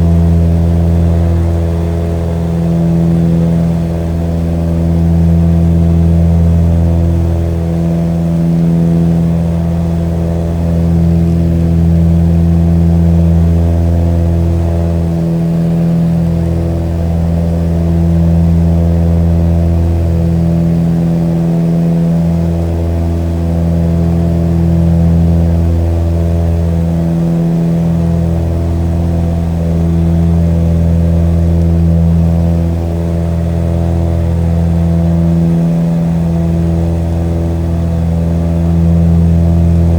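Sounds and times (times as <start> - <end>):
propeller airplane engine droning: 0.0 - 39.9.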